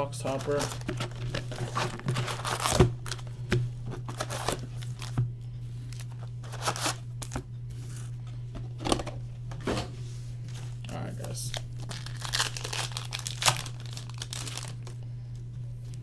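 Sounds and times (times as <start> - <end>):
steady low hum: 0.0 - 16.0
cardboard and wrappers tearing: 0.2 - 3.3, 4.0 - 5.2, 5.9 - 7.4, 11.5 - 14.9.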